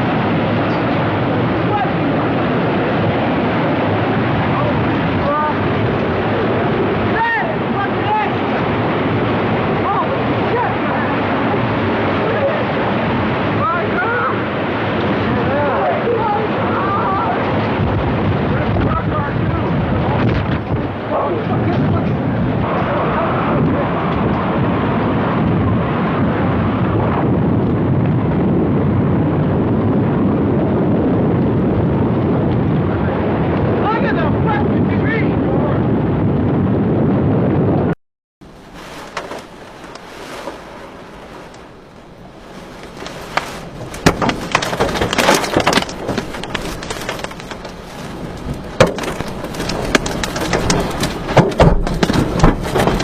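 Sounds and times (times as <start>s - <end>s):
strong wind blasting microphone: 0.0s - 53.0s
debris knocking and cracking: 38.7s - 40.7s, 42.0s - 53.0s.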